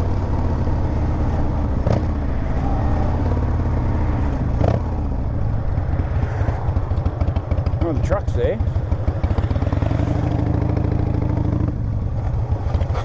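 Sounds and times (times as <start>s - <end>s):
wind rushing past microphone: 1.3s - 7.8s
motorcycle engine running: 3.1s - 13.0s.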